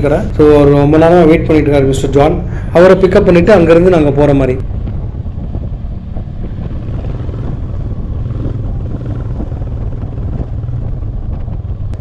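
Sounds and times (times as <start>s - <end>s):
wind noise on microphone: 4.6s - 12.0s
motorcycle engine running: 4.7s - 12.0s.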